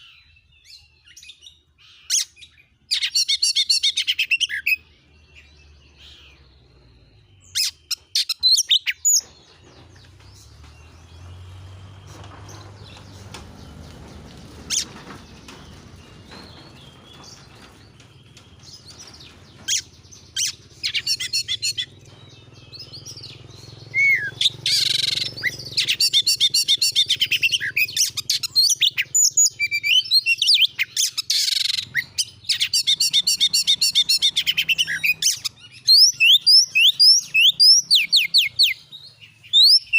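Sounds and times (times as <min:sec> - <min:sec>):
bird singing whistles and trills: 0:14.8 - 0:39.9.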